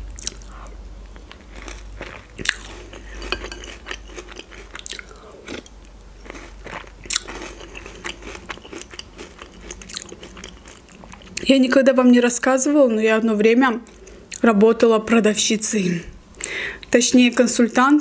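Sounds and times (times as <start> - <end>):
chewing and crunching cereal: 0.2 - 11.5.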